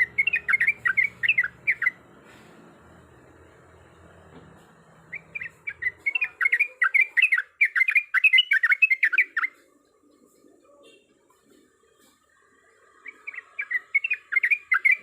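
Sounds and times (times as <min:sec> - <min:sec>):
bird singing sweeping notes: 0:00.0 - 0:02.1, 0:05.0 - 0:11.0, 0:12.6 - 0:15.0.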